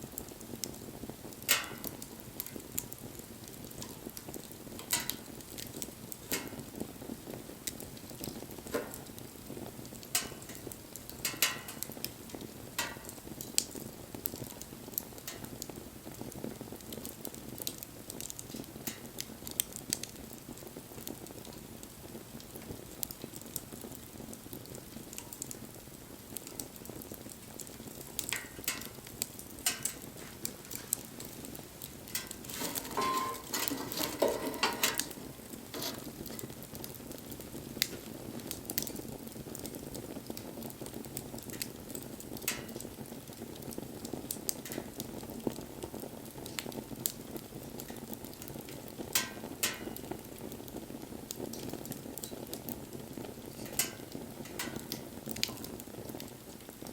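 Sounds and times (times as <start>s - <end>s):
wood fire crackling: 0.0s - 56.9s.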